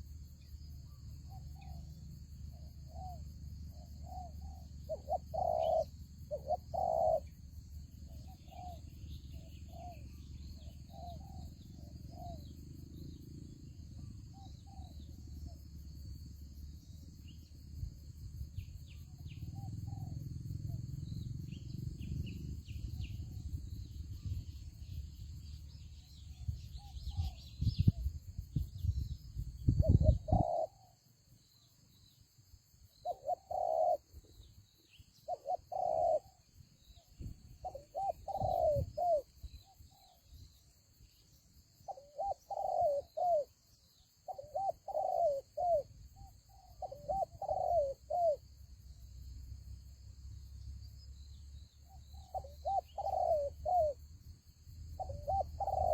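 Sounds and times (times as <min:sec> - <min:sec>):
small birds chirping: 0:00.0 - 0:32.3, 0:32.9 - 0:48.4, 0:50.6 - 0:55.9
doves cooing: 0:04.1 - 0:07.4, 0:29.8 - 0:31.0, 0:33.0 - 0:34.2, 0:35.2 - 0:36.4, 0:37.6 - 0:39.4, 0:41.9 - 0:43.5, 0:44.3 - 0:45.9, 0:46.6 - 0:48.4, 0:52.2 - 0:54.0, 0:55.0 - 0:55.9
low rumble on microphone: 0:20.7 - 0:30.4.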